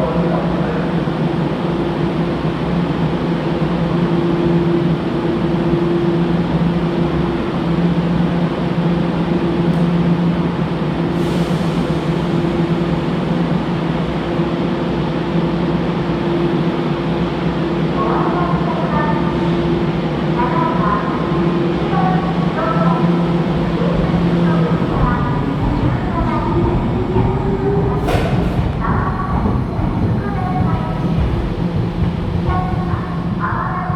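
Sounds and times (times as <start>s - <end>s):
electric train rumbling: 0.0s - 33.9s
low hum: 23.0s - 33.9s.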